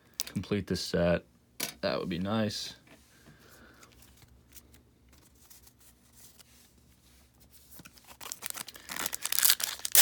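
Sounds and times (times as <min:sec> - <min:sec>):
plastic wrapper crinkling: 0:07.8 - 0:10.0.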